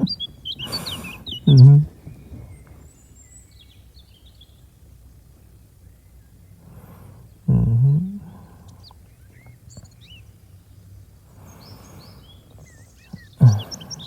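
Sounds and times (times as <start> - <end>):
birds chirping: 0.0 - 14.0
man humming: 1.5 - 2.0, 7.5 - 8.3, 13.4 - 13.9.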